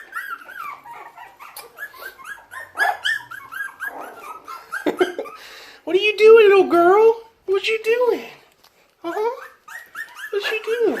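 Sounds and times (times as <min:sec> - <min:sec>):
puppies whimpering and yipping: 0:00.0 - 0:05.6, 0:09.0 - 0:11.0.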